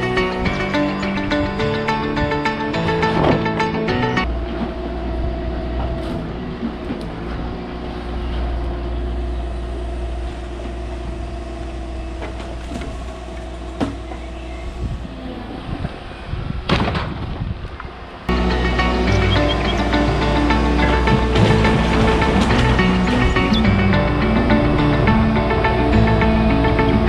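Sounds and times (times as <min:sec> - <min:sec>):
excavator engine drone: 0:00.0 - 0:16.6, 0:17.9 - 0:27.0
steady whining tone: 0:00.0 - 0:16.6, 0:17.9 - 0:27.0
loud clatter: 0:19.9 - 0:23.7.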